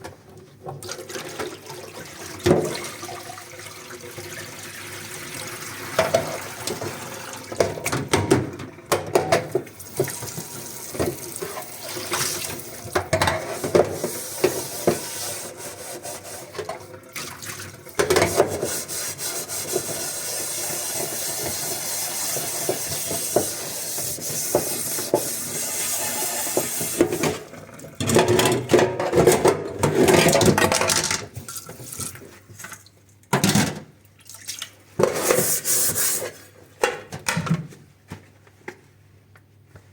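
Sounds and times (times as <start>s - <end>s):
running tap water: 0.8s - 8.8s, 9.7s - 28.0s.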